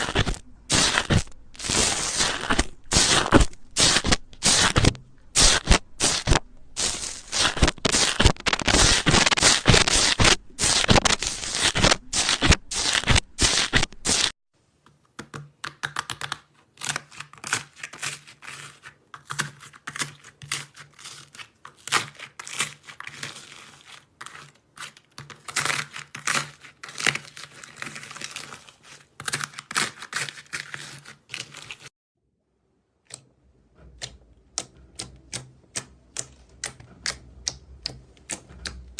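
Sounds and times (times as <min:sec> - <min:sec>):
slime crackling and popping: 0:00.0 - 0:14.3.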